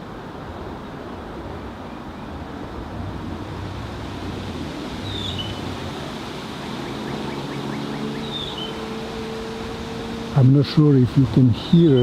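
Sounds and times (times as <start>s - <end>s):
distant road traffic rumble: 0.0s - 12.0s
high falling bird call: 6.8s - 8.8s, 11.6s - 12.0s.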